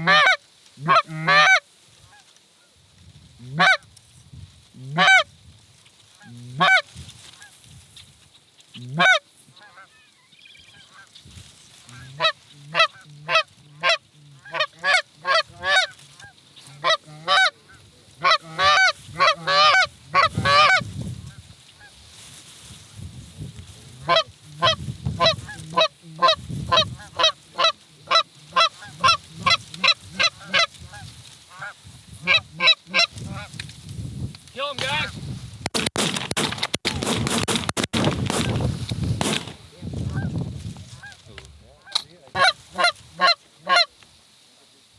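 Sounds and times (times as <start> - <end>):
goose honking and clucking: 0.0 - 2.3, 3.4 - 3.9, 4.8 - 5.3, 6.2 - 7.6, 8.7 - 11.2, 11.8 - 22.0, 23.9 - 33.6, 39.2 - 44.0.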